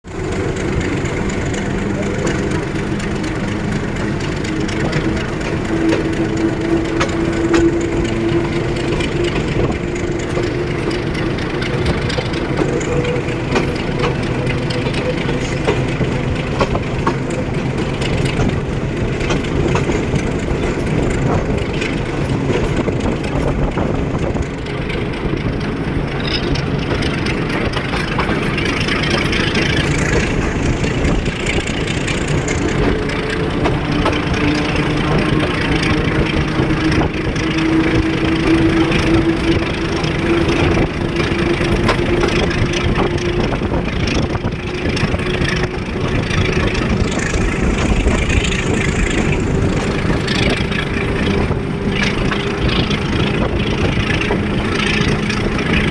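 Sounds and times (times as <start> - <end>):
train rumble and rattle: 0.0 - 55.9.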